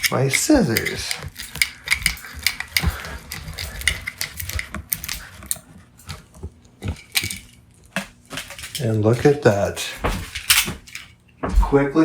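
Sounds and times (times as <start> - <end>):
scissors snipping through cord: 0.0 - 5.7.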